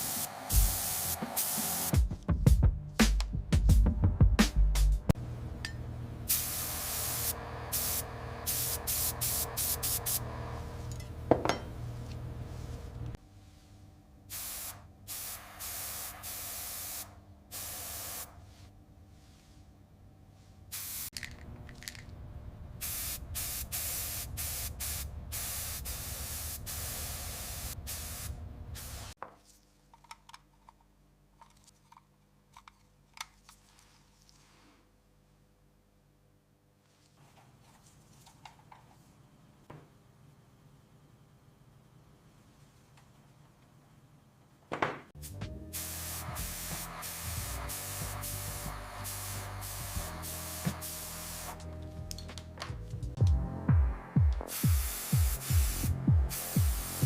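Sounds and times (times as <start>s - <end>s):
spraying hiss bursts: 0.0s - 2.1s, 6.3s - 10.6s, 14.3s - 18.4s, 20.7s - 21.1s, 22.8s - 29.2s, 45.2s - 51.7s, 54.4s - 57.0s.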